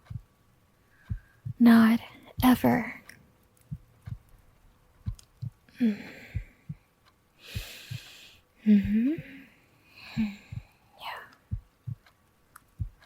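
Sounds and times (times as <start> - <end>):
heartbeat thumps: 0.0 - 0.3, 1.0 - 2.8, 3.7 - 4.3, 5.0 - 5.6, 6.2 - 9.4, 10.1 - 12.1, 12.7 - 13.0
woman breathing softly: 7.4 - 11.0.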